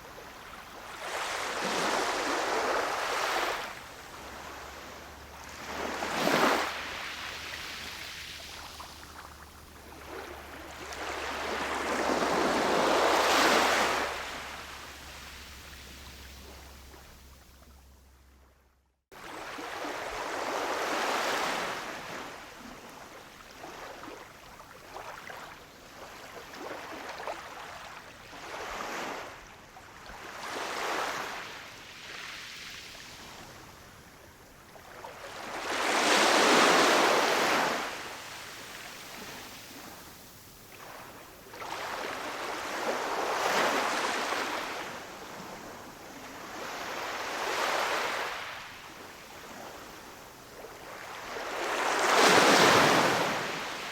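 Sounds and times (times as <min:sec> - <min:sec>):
ocean waves washing ashore: 0:00.0 - 0:17.8, 0:32.2 - 0:53.9.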